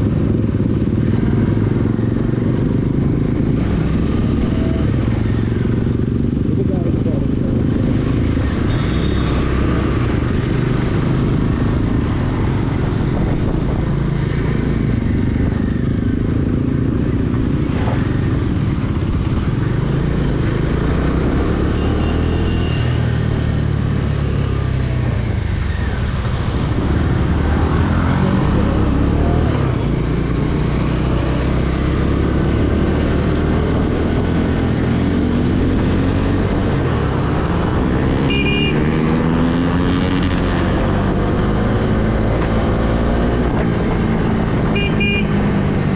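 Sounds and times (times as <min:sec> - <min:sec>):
wind and road noise: 0:00.0 - 0:45.9.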